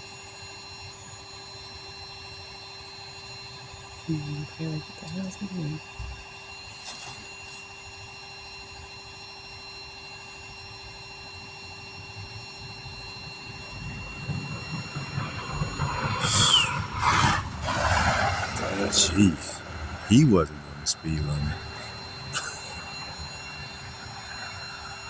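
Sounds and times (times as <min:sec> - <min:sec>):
steady low hum: 0:11.6 - 0:25.0
vehicle speeding past: 0:13.8 - 0:21.9.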